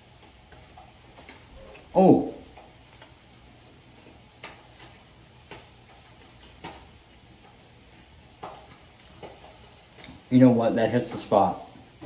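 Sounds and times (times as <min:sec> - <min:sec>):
sharp popping of fat: 0:08.4 - 0:09.4.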